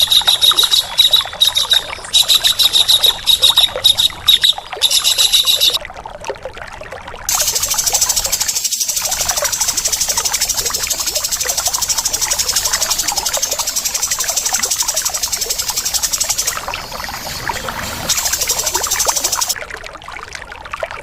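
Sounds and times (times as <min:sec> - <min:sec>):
high rattling bird trill: 0:00.0 - 0:05.8, 0:07.3 - 0:19.6
short bird chirps: 0:07.3 - 0:19.6.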